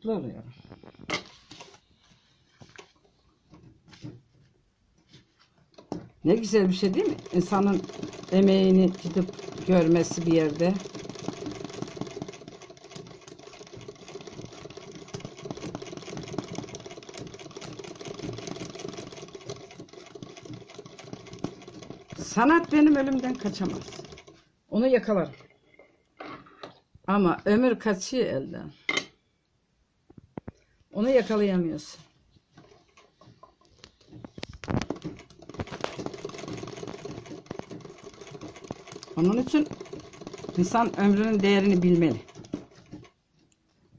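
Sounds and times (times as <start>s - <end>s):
sewing machine stitching: 5.8s - 24.4s, 34.6s - 43.1s.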